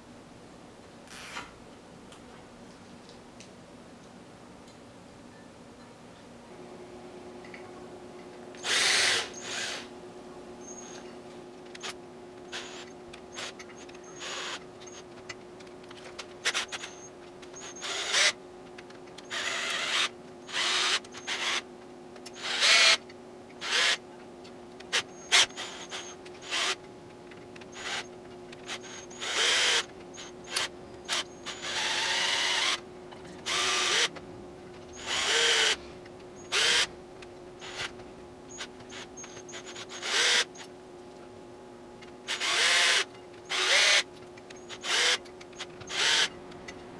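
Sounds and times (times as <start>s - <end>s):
faint steady hum: 0.0s - 46.9s
cordless drill bursts: 8.6s - 9.9s, 11.8s - 15.0s, 16.4s - 18.4s, 19.2s - 21.6s, 22.3s - 23.0s, 23.6s - 24.0s, 24.9s - 26.8s, 27.6s - 28.1s, 28.7s - 32.8s, 33.4s - 34.1s, 34.9s - 35.8s, 36.4s - 36.9s, 37.6s - 37.9s, 38.5s - 40.6s, 42.3s - 46.3s.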